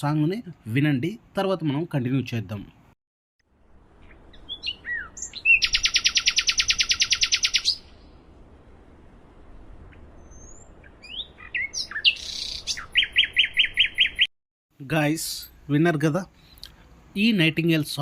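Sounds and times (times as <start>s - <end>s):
nightingale singing: 4.0s - 8.2s, 9.8s - 14.3s.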